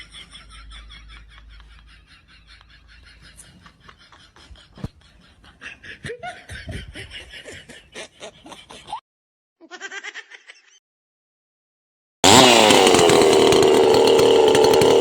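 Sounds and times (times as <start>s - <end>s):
person snickering and laughing: 0.0s - 9.0s, 9.6s - 10.8s.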